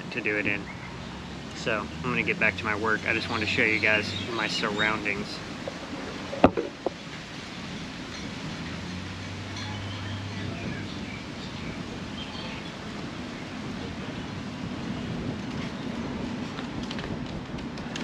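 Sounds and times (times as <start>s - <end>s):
low engine hum: 0.0s - 18.0s
steady rumble: 0.0s - 18.0s.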